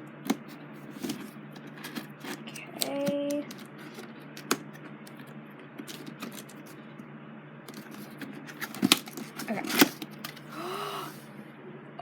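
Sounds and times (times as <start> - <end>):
packaging being opened: 0.3 - 6.8, 7.7 - 10.5.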